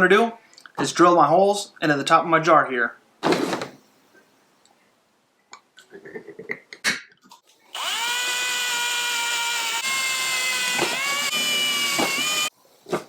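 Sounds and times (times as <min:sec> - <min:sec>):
electric drill whining: 0:07.7 - 0:12.5.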